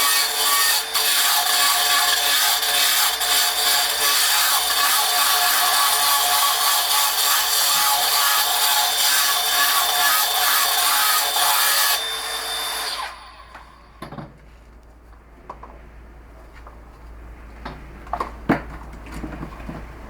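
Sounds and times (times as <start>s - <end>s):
power tool grinding stone: 0.0s - 13.7s.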